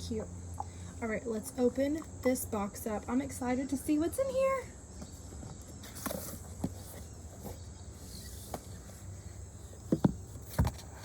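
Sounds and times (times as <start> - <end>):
cardboard box scrapes and clicks: 5.8 - 9.2.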